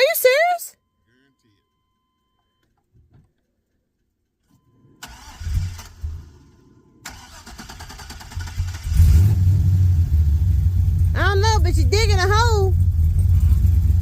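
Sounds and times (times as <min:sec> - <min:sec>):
engine cranking: 0:05.0 - 0:06.4, 0:07.0 - 0:09.5
engine rumbling and pulsing: 0:05.0 - 0:14.0.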